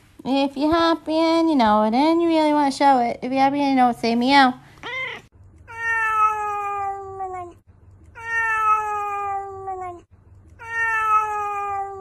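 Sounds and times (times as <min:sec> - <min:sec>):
cat meowing: 0:04.8 - 0:07.6, 0:08.2 - 0:12.0.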